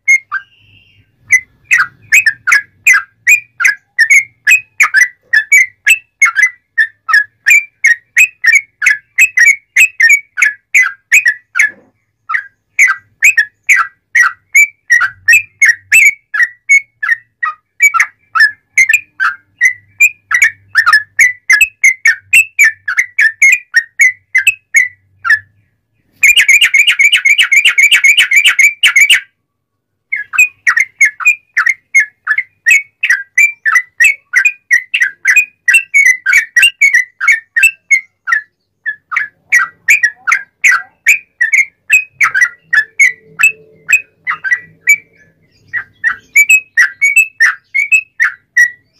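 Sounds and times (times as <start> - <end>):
bird singing whistled notes: 0.0 - 29.4, 30.1 - 48.9.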